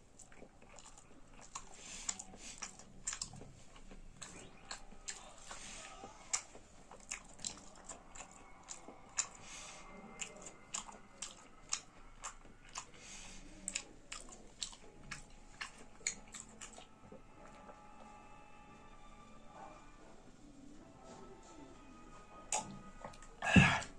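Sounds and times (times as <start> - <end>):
person chewing crunchy food: 0.0 - 17.9.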